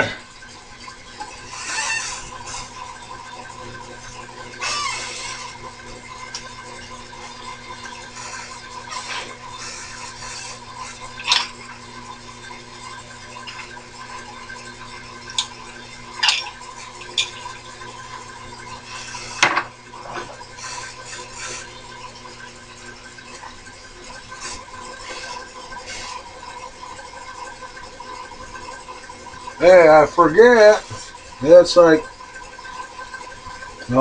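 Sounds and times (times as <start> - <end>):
milling machine motor hum: 0.0 - 34.0.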